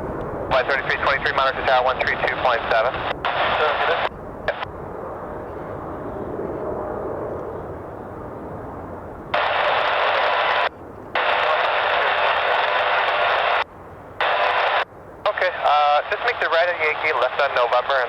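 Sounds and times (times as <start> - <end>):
jet aircraft engine: 0.0 - 18.0
radio static hissing: 0.5 - 4.7, 9.4 - 13.6, 14.2 - 18.0.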